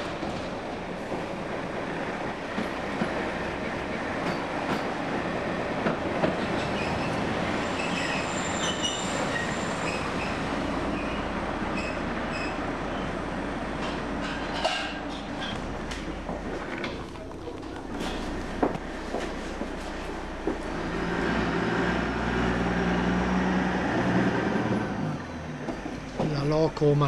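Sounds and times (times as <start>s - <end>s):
train wheels running on rails: 0.0s - 27.0s
high wheel squeals: 6.6s - 13.1s.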